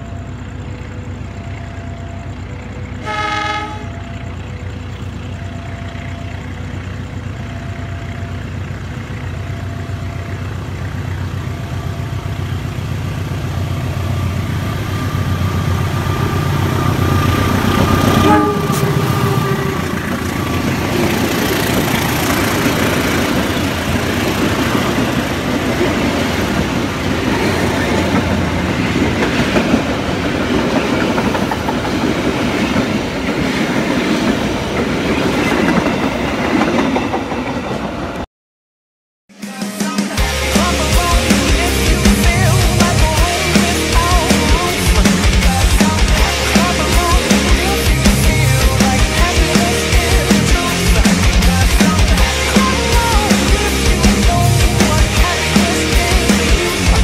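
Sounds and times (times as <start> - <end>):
locomotive engine and wheel rumble: 0.0 - 38.2, 40.2 - 57.0
passenger coaches clattering: 2.5 - 38.2
locomotive horn blast: 2.9 - 4.2, 16.3 - 24.0.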